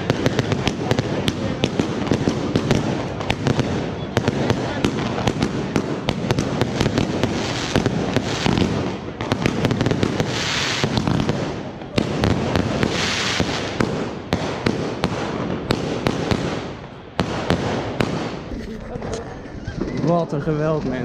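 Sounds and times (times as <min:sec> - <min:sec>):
fireworks hissing: 0:00.0 - 0:15.5
fireworks bangs and cracks: 0:00.0 - 0:19.1, 0:19.8 - 0:21.0.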